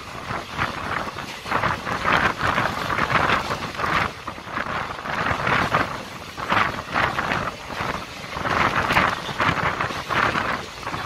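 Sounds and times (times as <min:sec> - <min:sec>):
rush of wind: 0:00.0 - 0:11.0
train wheels on rails: 0:00.0 - 0:11.0
wind buffeting the microphone: 0:00.0 - 0:11.0.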